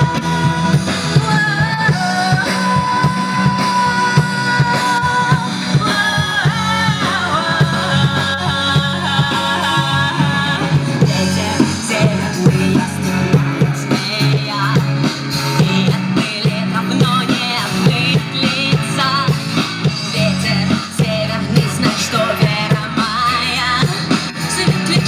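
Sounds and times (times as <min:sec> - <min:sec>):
drum kit beat: 0:00.0 - 0:25.0
electric guitar: 0:00.0 - 0:25.0
person singing: 0:00.0 - 0:25.0.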